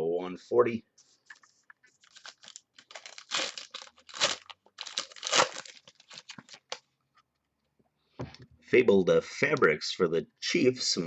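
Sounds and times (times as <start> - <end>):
plastic packaging crinkling: 1.9 - 6.9.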